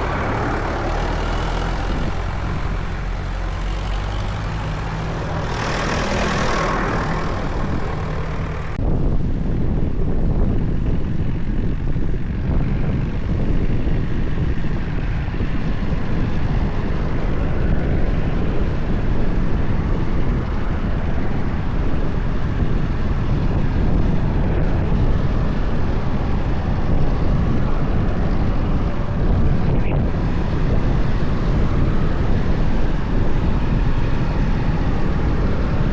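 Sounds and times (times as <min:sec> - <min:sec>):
tractor engines rumbling: 0:00.0 - 0:08.8, 0:16.7 - 0:35.9.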